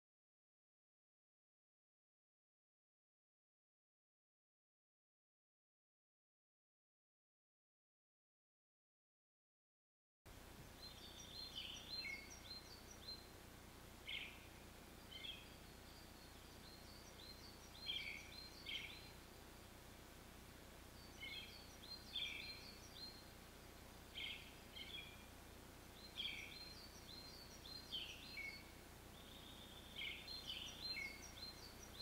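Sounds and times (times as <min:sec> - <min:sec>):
low background hiss: 0:10.3 - 0:32.0
small birds chirping: 0:10.3 - 0:32.0.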